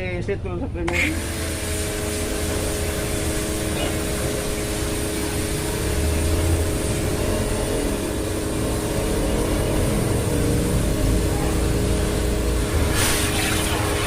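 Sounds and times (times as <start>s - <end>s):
pressure washer motor hum: 0.9s - 14.0s
water jet hissing: 1.0s - 14.0s.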